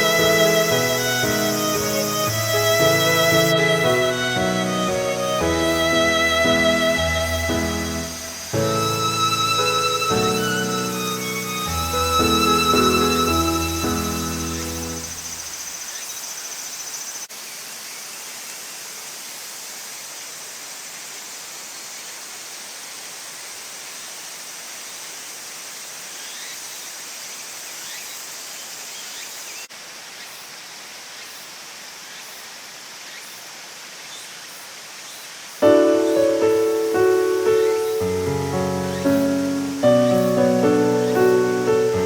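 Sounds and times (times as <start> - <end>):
high insect calls: 0.0 - 42.0
outdoor rushing hiss: 0.0 - 42.0.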